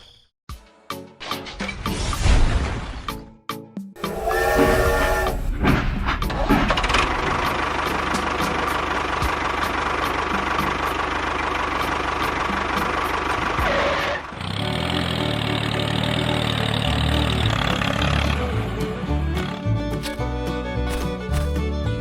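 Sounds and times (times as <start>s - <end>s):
music with sustained notes: 4.0s - 5.8s, 14.7s - 22.0s
engine knocking rhythmically: 6.2s - 21.8s.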